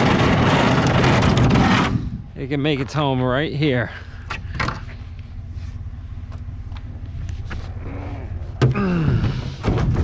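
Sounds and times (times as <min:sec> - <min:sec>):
vehicle engine idling: 0:02.0 - 0:10.0.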